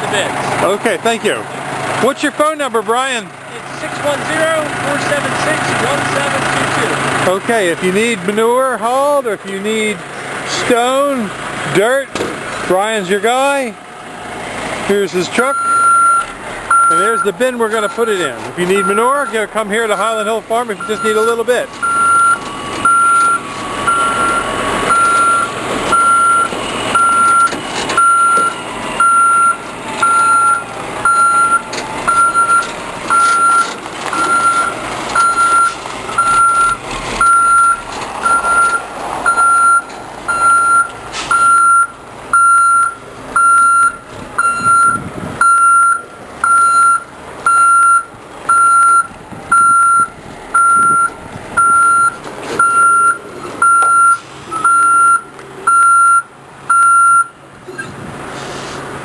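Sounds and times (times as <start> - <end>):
truck engine running: 0.0 - 59.0
truck reversing alarm beeps: 15.3 - 57.9.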